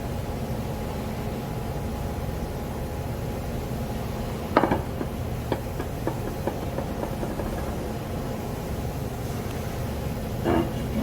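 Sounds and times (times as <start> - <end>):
wood piece bouncing: 4.6 - 7.9.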